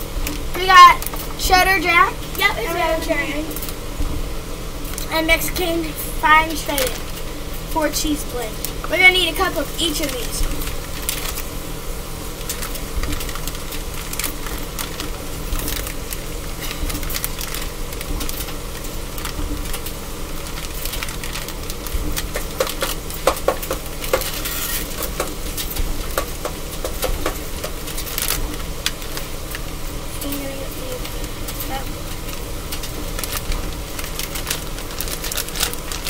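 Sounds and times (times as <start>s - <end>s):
plastic bag crinkling: 8.6s - 11.6s, 12.3s - 29.8s, 30.9s - 36.0s.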